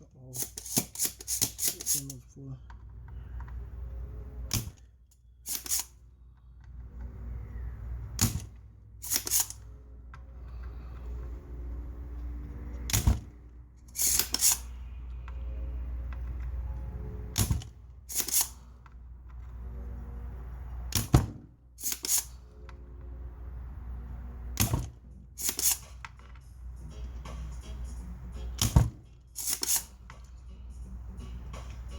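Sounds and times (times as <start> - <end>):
low steady hum: 0.0 - 31.9
desoldering pump snapping: 0.4 - 2.2, 4.5 - 6.0, 8.1 - 9.7, 12.8 - 14.7, 17.4 - 18.7, 21.8 - 22.4, 24.6 - 26.3, 28.6 - 30.4.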